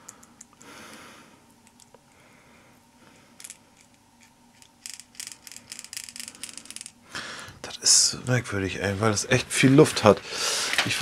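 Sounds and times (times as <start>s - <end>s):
steel balls clicking and rattling: 3.4s - 7.0s.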